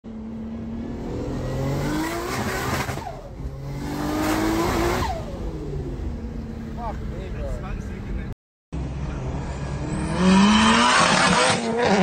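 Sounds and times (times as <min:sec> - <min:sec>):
car engine revving hard: 0:00.6 - 0:05.6, 0:09.5 - 0:12.0.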